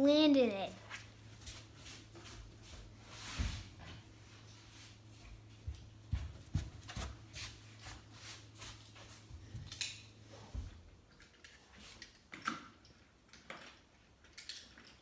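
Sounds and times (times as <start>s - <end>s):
toy cars clicking and rattling: 11.2s - 15.0s.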